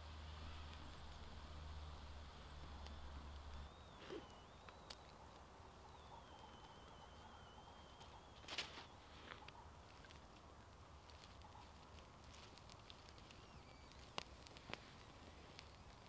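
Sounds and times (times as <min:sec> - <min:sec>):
campfire crackling: 0:00.0 - 0:16.0
thin high whistle: 0:02.4 - 0:09.1.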